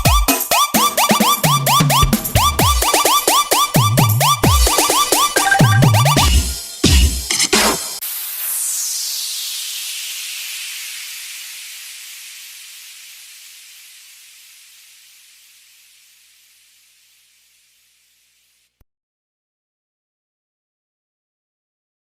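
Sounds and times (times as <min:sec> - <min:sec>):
white-noise sweep: 0:08.0 - 0:17.9.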